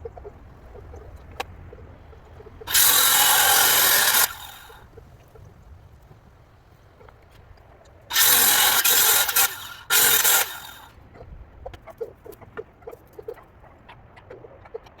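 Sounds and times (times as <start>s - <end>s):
power tool bursts: 2.7s - 4.8s, 8.1s - 10.9s.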